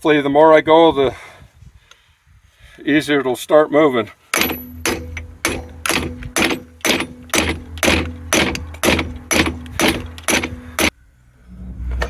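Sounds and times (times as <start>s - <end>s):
hammer blows on metal: 4.3s - 10.9s
steady low hum: 4.3s - 11.9s.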